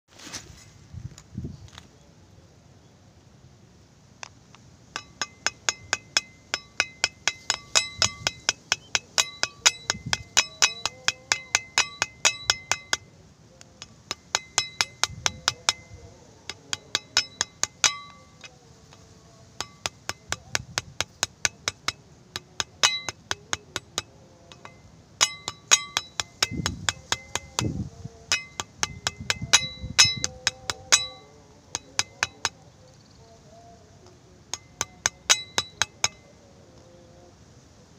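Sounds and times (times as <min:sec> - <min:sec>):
utensil clinking against container: 0:05.0 - 0:13.1, 0:13.8 - 0:18.5, 0:19.6 - 0:32.6, 0:34.6 - 0:36.2.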